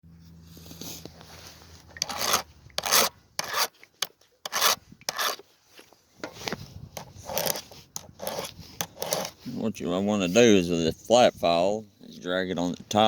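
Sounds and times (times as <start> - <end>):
hand file rasping on chain: 2.0 - 3.8, 4.4 - 5.4, 7.0 - 9.4.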